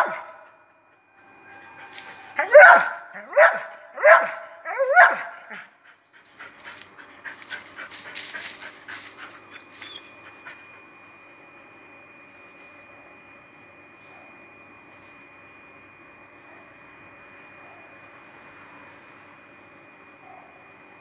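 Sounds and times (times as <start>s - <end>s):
dog barking: 0.0s - 0.4s, 2.4s - 5.6s.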